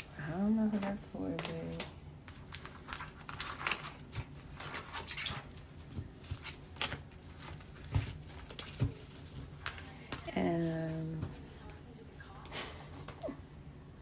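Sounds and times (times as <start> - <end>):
cards being shuffled: 0.7 - 10.3.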